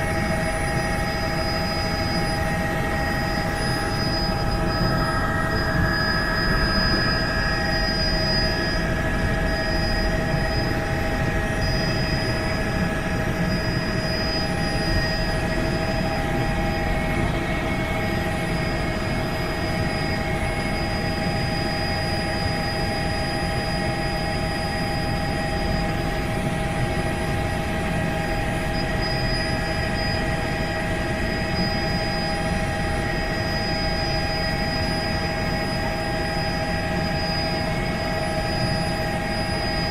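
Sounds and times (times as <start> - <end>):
helicopter engine and rotor: 0.0 - 39.9
steady whining tones: 0.0 - 39.9.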